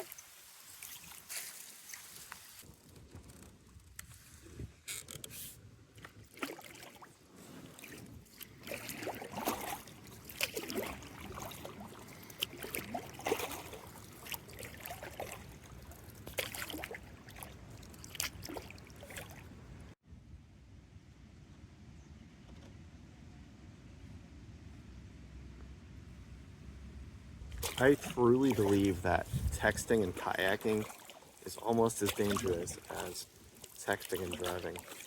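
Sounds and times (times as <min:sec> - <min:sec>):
paddle strokes splashing water: 0:00.0 - 0:02.7, 0:06.0 - 0:19.6, 0:27.5 - 0:35.0
water trickling: 0:08.3 - 0:19.6, 0:27.6 - 0:35.0.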